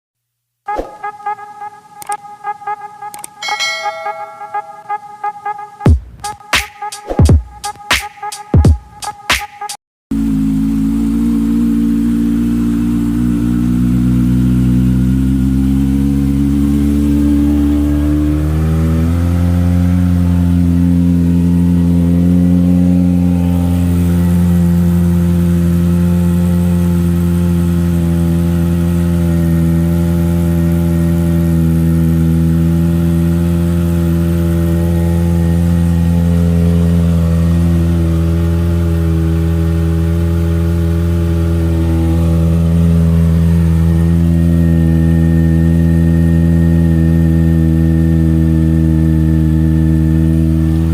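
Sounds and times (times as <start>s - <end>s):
motorcycle engine idling: 10.2s - 46.1s.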